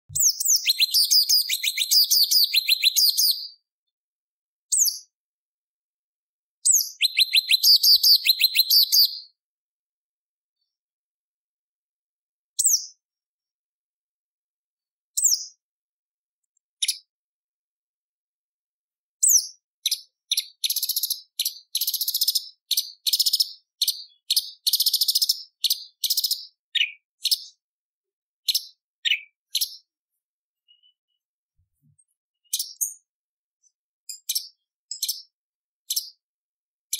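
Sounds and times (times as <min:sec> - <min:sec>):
bird singing: 0:00.1 - 0:03.6, 0:06.6 - 0:09.4, 0:19.3 - 0:27.6, 0:30.6 - 0:31.3.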